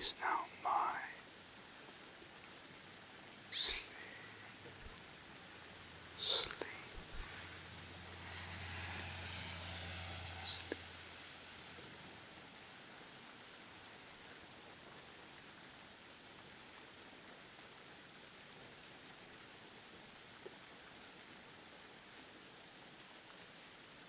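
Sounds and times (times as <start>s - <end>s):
faint steady rain: 0.0s - 24.0s.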